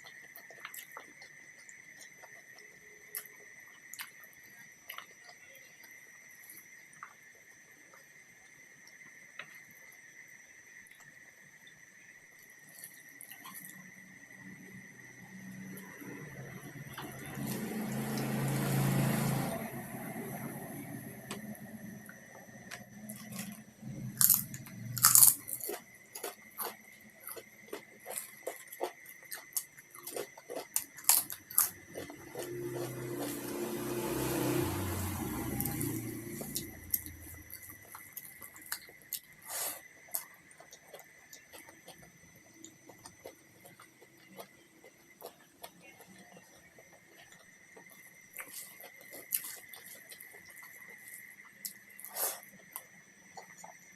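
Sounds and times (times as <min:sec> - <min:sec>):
chewing with mouth clicks: 0:00.0 - 0:07.2, 0:21.3 - 0:33.4, 0:35.6 - 0:53.9
crunchy bites: 0:21.2 - 0:53.7.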